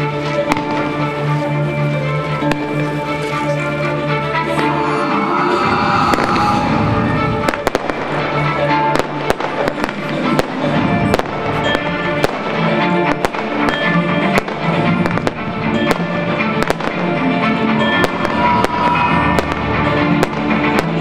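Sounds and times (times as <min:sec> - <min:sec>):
music playing: 0:00.0 - 0:21.0
fireworks bangs and cracks: 0:00.4 - 0:01.2, 0:06.0 - 0:21.0.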